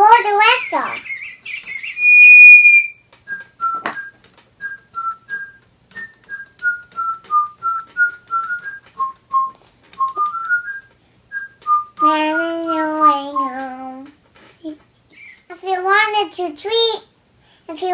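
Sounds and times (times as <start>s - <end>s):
toy bird chirpy electronic tune: 1.0s - 2.9s
toy whistle high note: 1.8s - 4.1s.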